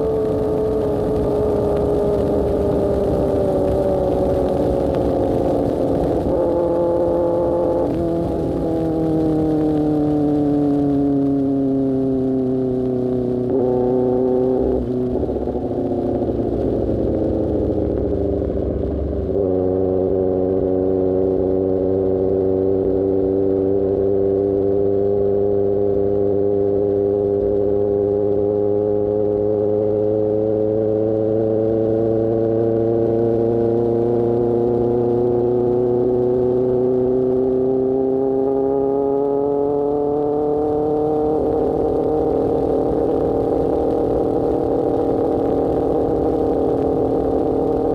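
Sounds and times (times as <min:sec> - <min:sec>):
motorcycle engine: 0:00.0 - 0:47.9.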